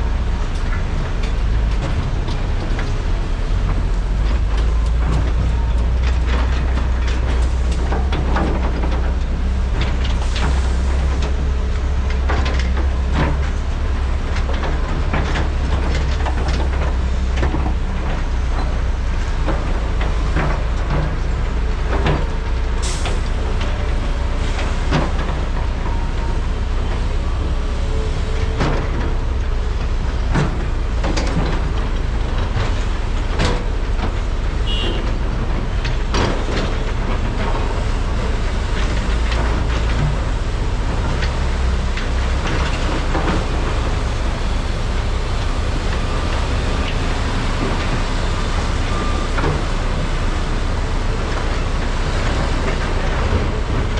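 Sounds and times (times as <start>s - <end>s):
excavator diesel drone: 0.0s - 53.9s.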